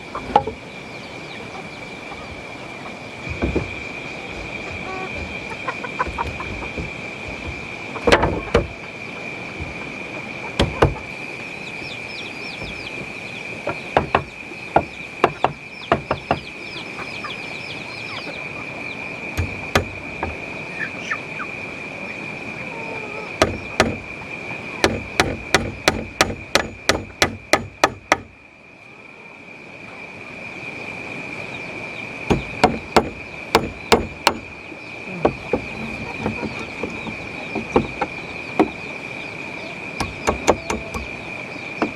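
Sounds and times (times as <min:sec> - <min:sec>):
high insect drone: 0:00.0 - 0:41.9
tool knocking on wood: 0:03.3 - 0:05.4, 0:06.0 - 0:08.7, 0:10.6 - 0:11.0, 0:13.6 - 0:16.5, 0:19.4 - 0:20.4, 0:23.4 - 0:24.0, 0:24.8 - 0:28.3, 0:32.3 - 0:34.4, 0:35.2 - 0:38.8, 0:40.0 - 0:41.1
bird chirps: 0:08.4 - 0:24.9, 0:31.4 - 0:41.9.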